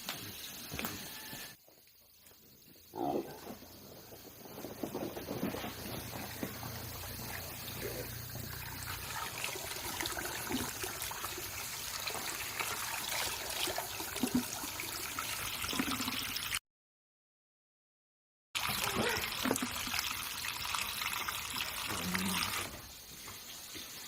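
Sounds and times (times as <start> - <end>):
water trickling: 5.7 - 16.6, 18.6 - 24.0.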